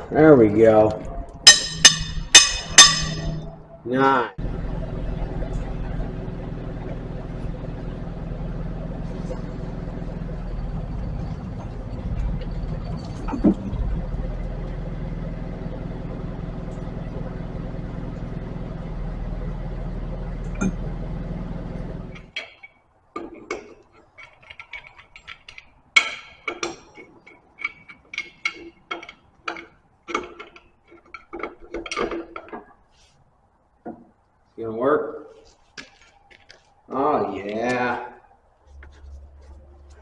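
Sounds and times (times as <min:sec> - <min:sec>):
engine running: 0:01.3 - 0:22.4, 0:38.6 - 0:40.0
metal tools clinking and knocking: 0:01.4 - 0:03.6, 0:22.2 - 0:32.7.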